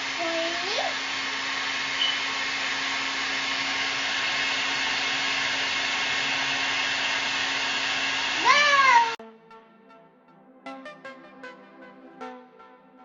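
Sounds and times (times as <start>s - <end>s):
hair dryer running: 0.0s - 9.2s.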